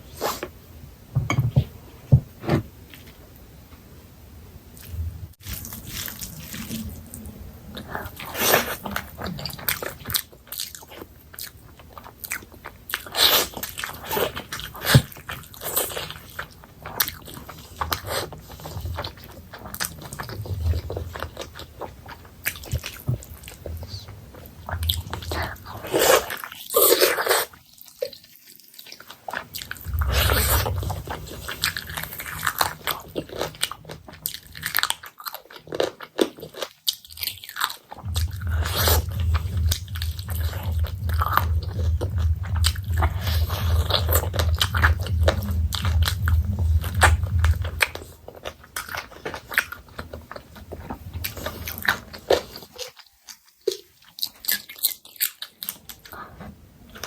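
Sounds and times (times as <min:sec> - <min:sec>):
close chewing and biting: 0:04.8 - 0:57.0
low hum: 0:29.5 - 0:33.7, 0:38.0 - 0:48.4.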